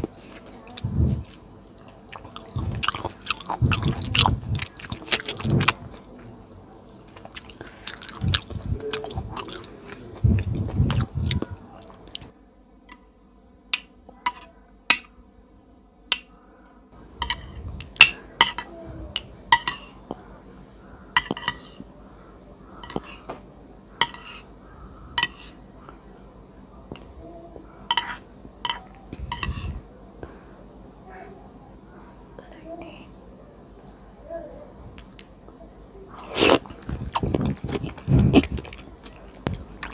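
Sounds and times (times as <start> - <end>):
chewing soft food: 0.0 - 6.1, 7.1 - 12.3, 36.1 - 39.9
mouth clicks: 2.1 - 5.8, 7.3 - 12.3, 36.2 - 39.9.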